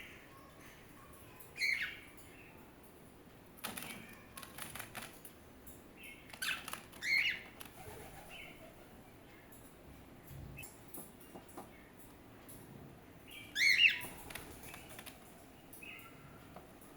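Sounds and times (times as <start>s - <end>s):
birds chirping: 0.0s - 16.9s
rustling and wing flaps: 3.6s - 5.3s, 6.3s - 9.0s, 14.1s - 15.3s.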